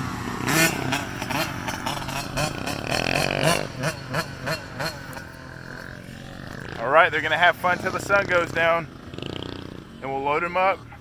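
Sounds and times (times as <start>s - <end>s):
small off-road engine revving: 0.0s - 11.0s.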